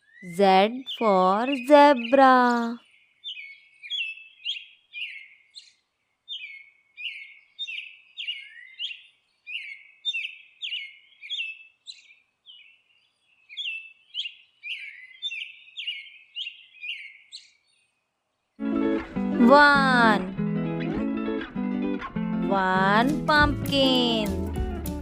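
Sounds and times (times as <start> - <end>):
bird chirping: 0.0 - 18.6.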